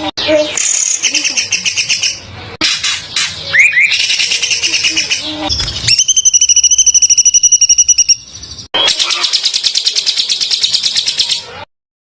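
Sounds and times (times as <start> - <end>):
songbird trilling: 3.2 - 11.4.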